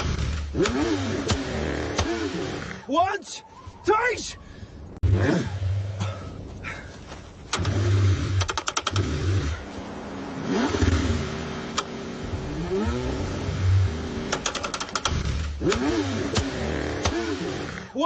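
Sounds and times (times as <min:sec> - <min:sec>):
car engine cranking: 0:00.0 - 0:02.8, 0:07.4 - 0:09.8, 0:10.4 - 0:18.0
quick clicks: 0:14.3 - 0:16.5.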